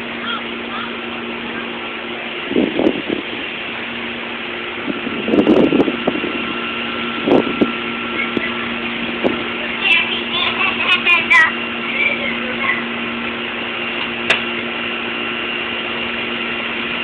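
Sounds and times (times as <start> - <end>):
steady hum: 0.0 - 17.0
storm wind buffeting microphone: 2.4 - 3.4, 4.8 - 9.6.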